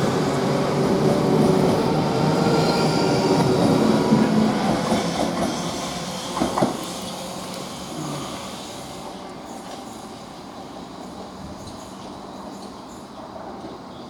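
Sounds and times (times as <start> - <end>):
train wheels clattering: 4.5 - 7.6.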